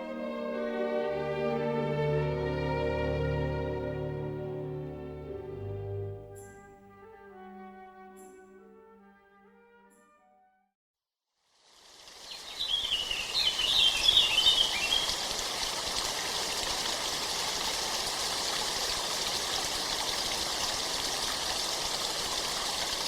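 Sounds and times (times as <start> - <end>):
running water: 11.7 - 23.0
bird twittering: 12.3 - 15.2.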